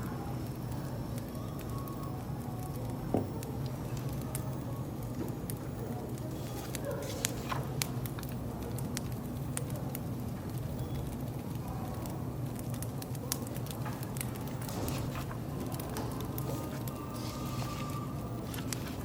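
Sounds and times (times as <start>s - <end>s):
low background hum: 0.0s - 19.0s
wood fire crackling: 0.0s - 19.0s.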